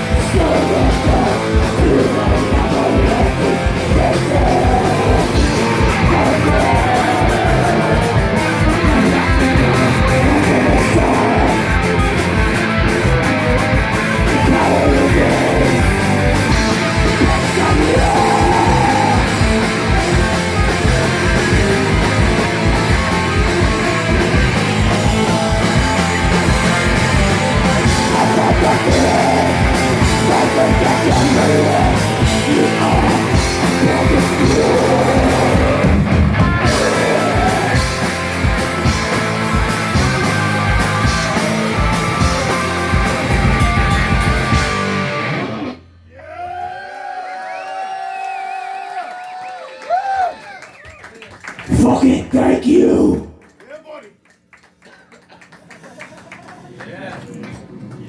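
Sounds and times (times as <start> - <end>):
distorted electric guitars: 0.0 - 46.0
person yelling vocals: 0.3 - 8.1, 9.8 - 11.7, 14.3 - 16.0, 17.2 - 19.4, 28.0 - 36.0, 51.7 - 53.4.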